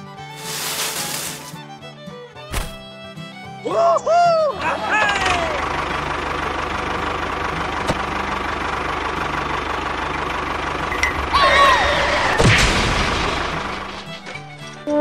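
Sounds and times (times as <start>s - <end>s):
tractor engine idling: 4.5s - 14.8s.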